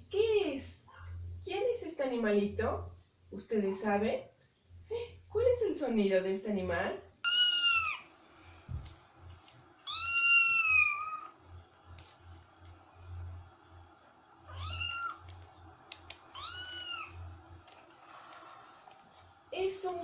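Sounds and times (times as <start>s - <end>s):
cat meowing: 7.2s - 8.1s, 9.8s - 11.4s, 14.4s - 15.2s, 16.3s - 17.2s.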